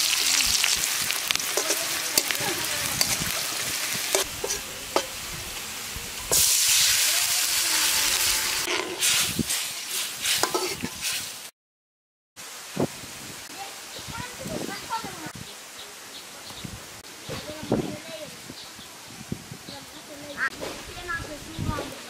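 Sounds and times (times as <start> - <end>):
onions sizzling in oil: 0.0 - 11.5
spatula scraping metal wok: 1.4 - 5.3, 6.2 - 11.3.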